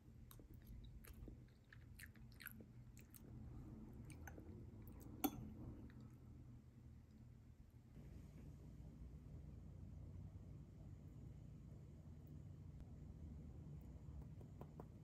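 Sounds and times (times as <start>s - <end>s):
faint chewing and mouth clicks: 0.0s - 6.2s.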